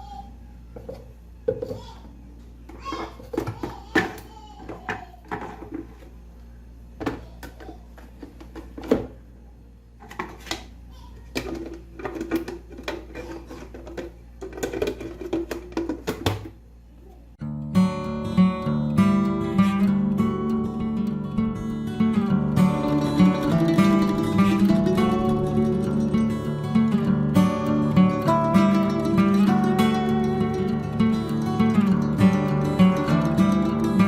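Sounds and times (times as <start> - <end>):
strummed acoustic guitar music: 17.4 - 34.0.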